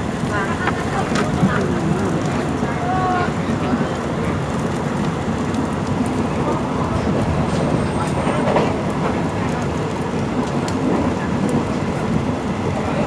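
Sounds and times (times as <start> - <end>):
train rumbling along track: 0.0 - 13.0.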